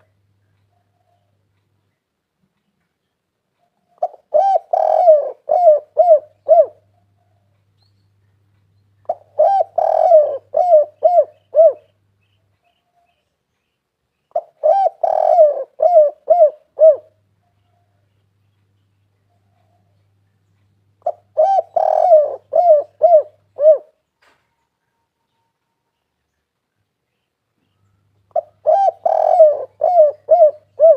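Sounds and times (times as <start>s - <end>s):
dove cooing: 3.8s - 7.5s, 9.0s - 12.0s, 14.3s - 18.0s, 21.0s - 24.0s, 28.3s - 30.9s.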